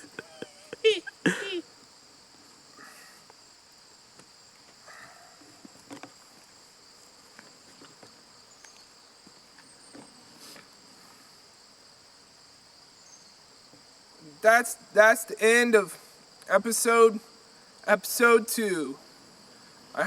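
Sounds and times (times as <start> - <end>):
insects trilling: 0.0 - 20.0
faint clicks and rustles: 5.4 - 10.8.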